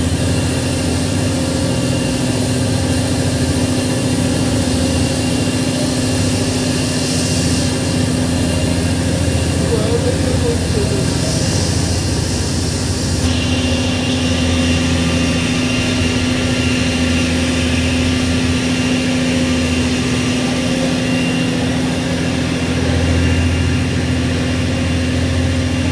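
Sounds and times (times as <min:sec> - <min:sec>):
engine drone: 0:00.0 - 0:25.9
wind: 0:00.0 - 0:25.9
heavy rain hiss: 0:09.4 - 0:13.2.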